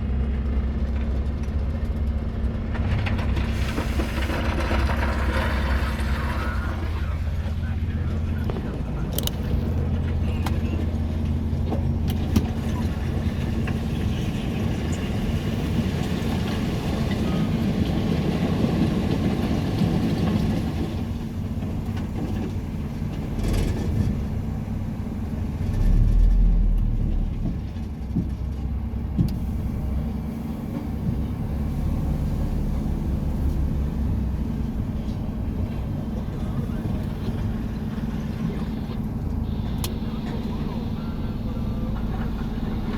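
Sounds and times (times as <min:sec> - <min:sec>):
truck engine drone: 0:00.0 - 0:42.9
tyre road hiss: 0:03.4 - 0:08.4, 0:29.2 - 0:42.9.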